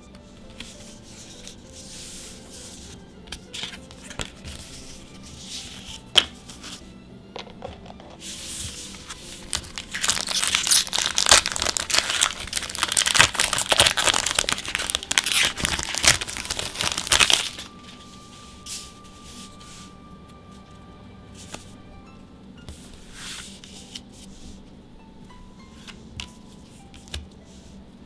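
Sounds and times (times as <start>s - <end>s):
foil wrapper crinkling and tearing: 9.0s - 18.0s.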